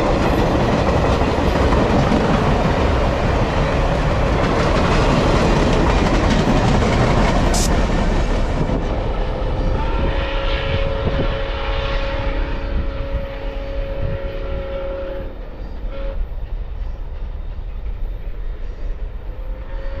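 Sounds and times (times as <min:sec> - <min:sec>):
rumble of moving train: 0:00.0 - 0:20.0
steam locomotive whistle: 0:09.3 - 0:16.4, 0:18.5 - 0:20.0.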